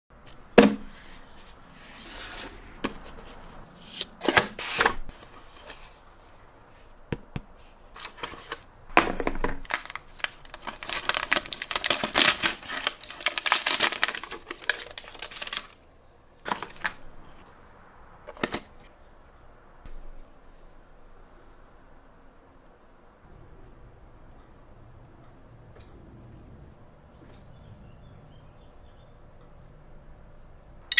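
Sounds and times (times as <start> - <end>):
packaging rustling and scraping: 0.7 - 6.9, 7.6 - 15.8, 16.4 - 17.5
packaging clicks and knocks: 7.2 - 15.7.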